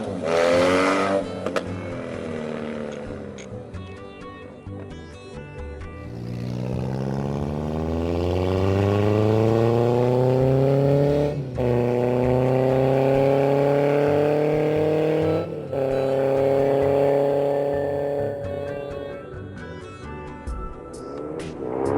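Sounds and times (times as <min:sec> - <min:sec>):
motorcycle engine accelerating: 0:00.0 - 0:03.6, 0:05.9 - 0:19.3, 0:20.5 - 0:21.9.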